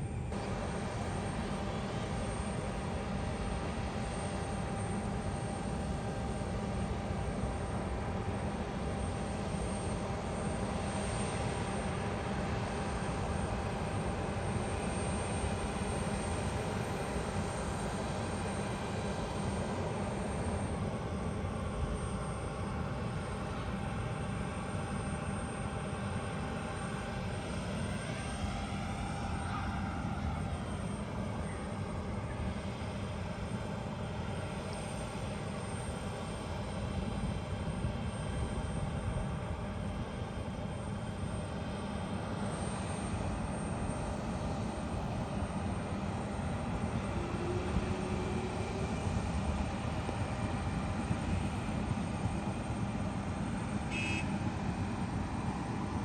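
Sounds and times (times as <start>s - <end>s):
airliner engines running: 0.0s - 56.0s.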